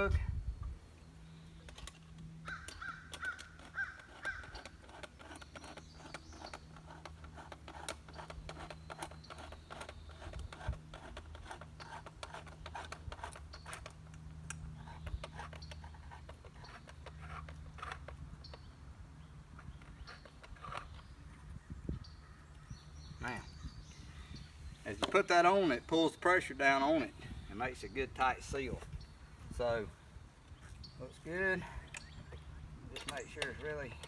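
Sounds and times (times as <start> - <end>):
nut clicking and scraping: 1.6 - 18.7.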